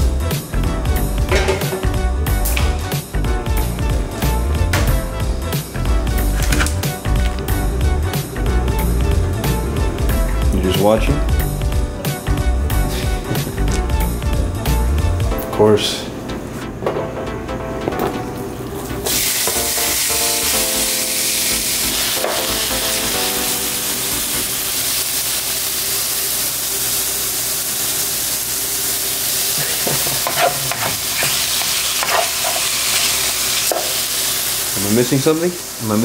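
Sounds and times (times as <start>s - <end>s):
chicken sizzling in oil: 19.0s - 36.0s.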